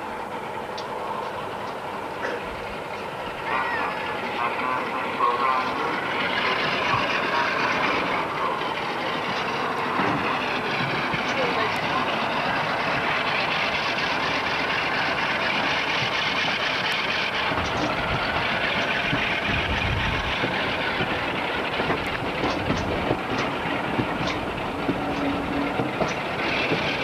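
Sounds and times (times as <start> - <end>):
train wheels rumbling: 0.0 - 27.0
wheel clicks over rail joints: 6.0 - 27.0.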